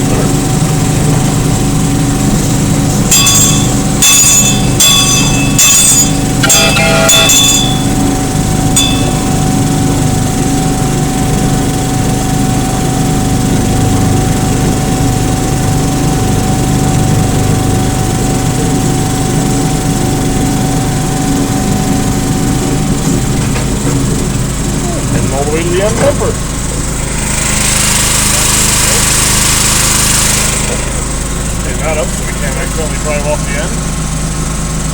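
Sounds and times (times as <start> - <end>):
small locomotive engine running: 0.0 - 34.9
steady whine: 0.0 - 34.9
bell ring: 2.8 - 10.9.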